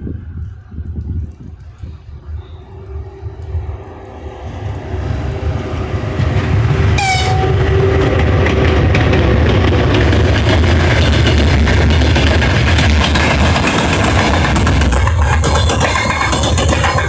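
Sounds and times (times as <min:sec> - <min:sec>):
freight train rumbling: 0:00.0 - 0:17.0
wheels clicking over rail joints: 0:00.3 - 0:17.0
train horn blast: 0:06.6 - 0:08.6.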